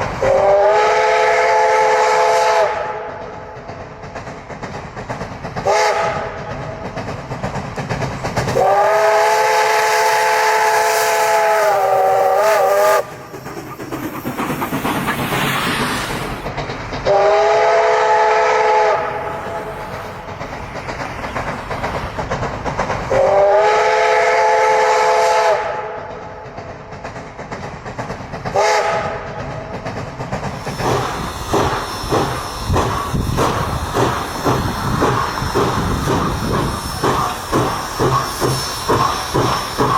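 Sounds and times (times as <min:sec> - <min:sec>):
locomotive exhaust chuffs: 0:00.0 - 0:39.9
steam hiss and running noise: 0:00.0 - 0:39.9
steam locomotive chime whistle: 0:00.2 - 0:03.2, 0:05.7 - 0:06.4, 0:08.6 - 0:13.1, 0:17.1 - 0:19.6, 0:23.1 - 0:26.1, 0:28.6 - 0:29.3.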